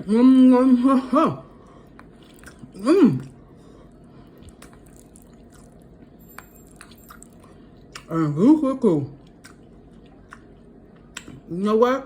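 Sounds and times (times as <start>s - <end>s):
eating clicks and smacks: 1.9s - 3.4s, 9.2s - 11.5s.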